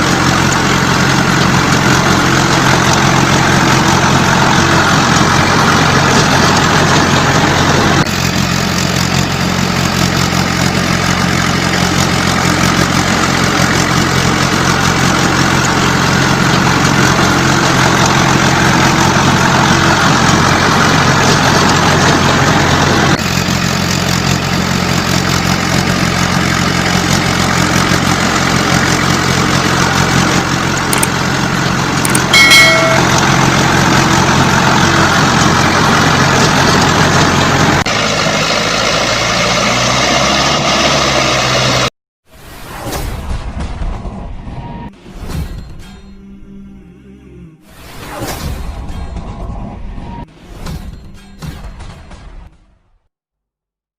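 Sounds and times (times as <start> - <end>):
diesel engine running: 0.0 - 41.9
brief high-pitched tone: 32.1 - 33.6.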